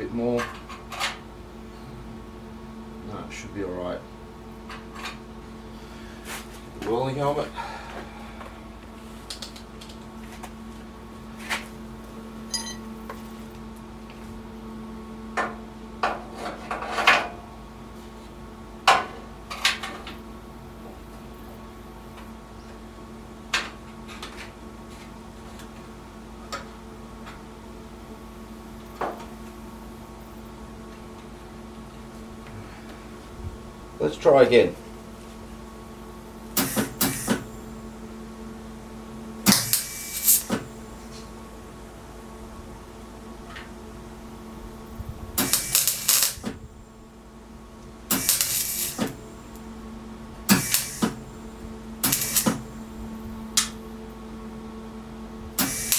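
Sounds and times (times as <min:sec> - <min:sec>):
welding crackle: 0:39.5 - 0:40.5, 0:45.4 - 0:46.5, 0:48.1 - 0:49.7, 0:50.4 - 0:51.3, 0:52.0 - 0:52.9, 0:55.6 - 0:55.9.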